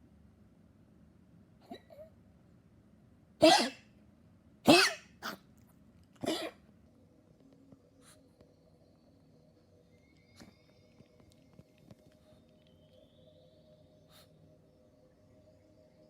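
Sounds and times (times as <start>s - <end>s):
dog coughing: 1.6s - 2.1s, 3.4s - 3.8s, 4.7s - 5.4s, 6.2s - 6.6s.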